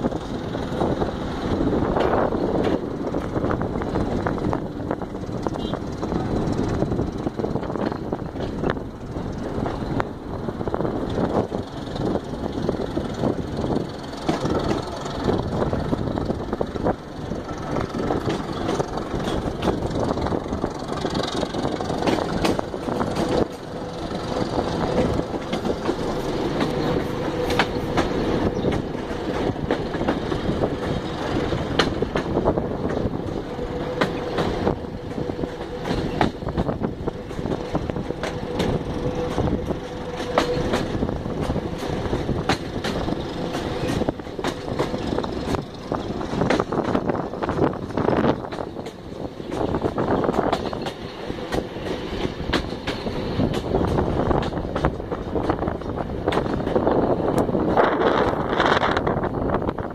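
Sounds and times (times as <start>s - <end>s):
train wheels rumbling on track: 0.0s - 59.9s
wheel clicks over rails: 17.0s - 33.2s.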